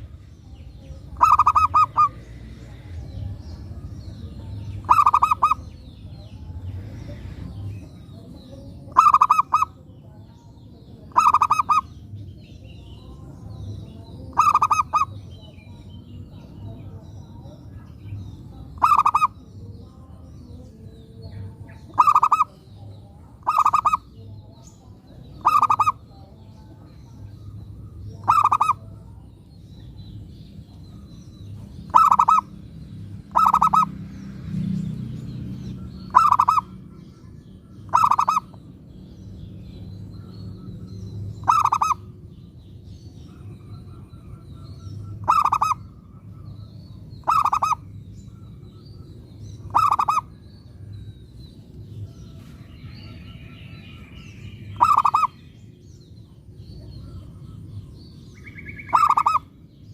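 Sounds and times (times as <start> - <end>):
dove cooing: 1.0 - 2.7, 4.8 - 5.6, 8.9 - 9.8, 11.1 - 11.9, 14.3 - 15.2, 18.7 - 19.4, 21.8 - 22.6, 23.4 - 24.1, 25.4 - 26.1, 28.2 - 29.0, 31.8 - 32.5, 33.3 - 33.9, 36.0 - 36.9, 37.8 - 38.6, 41.4 - 42.1, 43.3 - 46.5, 47.2 - 48.5, 49.6 - 50.4, 54.7 - 55.4, 58.6 - 59.5.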